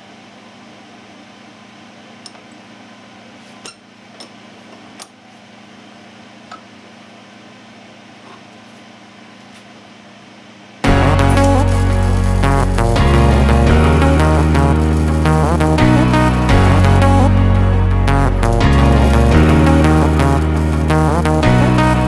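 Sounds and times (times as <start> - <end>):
steady low hum: 10.8 - 22.0.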